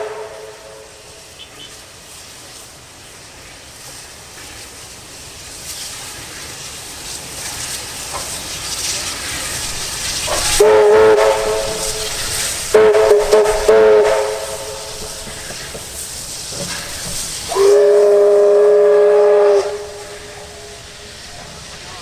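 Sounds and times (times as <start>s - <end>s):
steam locomotive chime whistle: 0.0s - 1.6s, 10.3s - 15.4s, 17.5s - 20.9s
approaching steam train: 0.0s - 22.0s.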